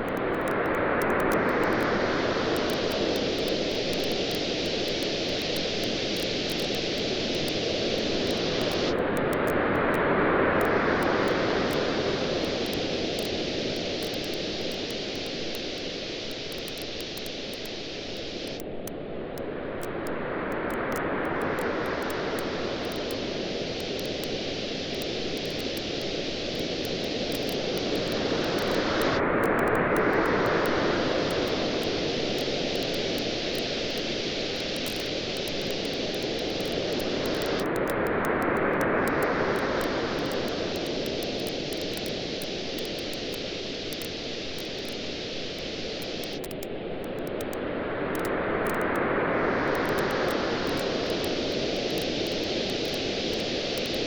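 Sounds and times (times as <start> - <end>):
waves washing onto a beach: 0.0 - 54.0
campfire crackling: 10.7 - 18.8, 20.7 - 38.1, 38.8 - 47.5, 49.7 - 54.0.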